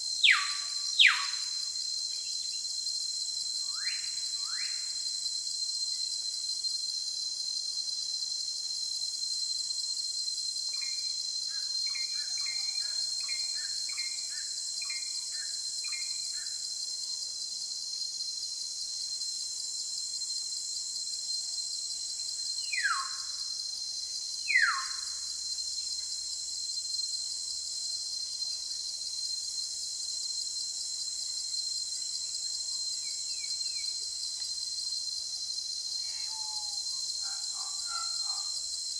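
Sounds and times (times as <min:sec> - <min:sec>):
high-pitched insect drone: 0:00.0 - 0:38.9.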